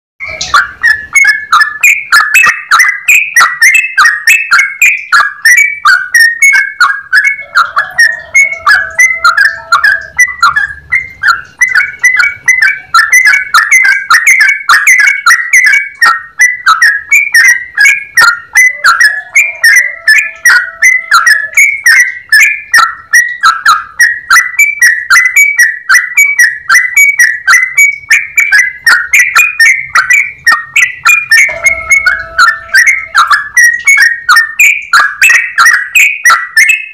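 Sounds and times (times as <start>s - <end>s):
bird chirping rapidly: 0.2s - 36.9s.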